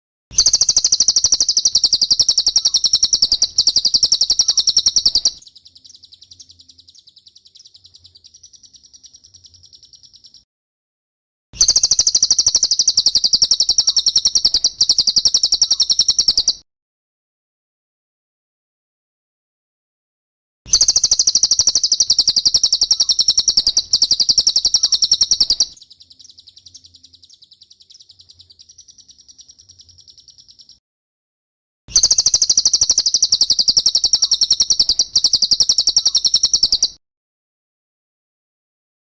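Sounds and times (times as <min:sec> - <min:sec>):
bird high-pitched trill: 0:00.4 - 0:10.5, 0:11.6 - 0:16.6, 0:20.7 - 0:30.8, 0:31.9 - 0:37.0.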